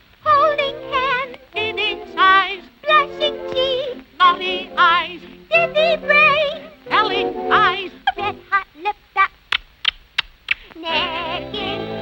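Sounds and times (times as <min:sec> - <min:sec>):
high-pitched singing with vibrato: 0:00.2 - 0:09.4, 0:10.8 - 0:12.0
orchestral accompaniment: 0:00.3 - 0:08.5.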